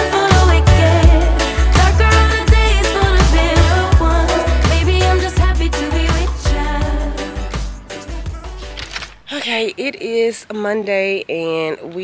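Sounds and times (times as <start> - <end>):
r and b song with singing: 0.0 - 9.0.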